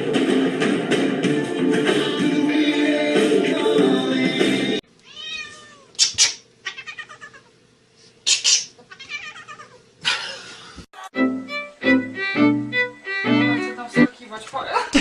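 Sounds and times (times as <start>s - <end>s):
cat meowing and yowling: 5.1s - 5.9s, 6.7s - 7.5s, 8.9s - 9.8s.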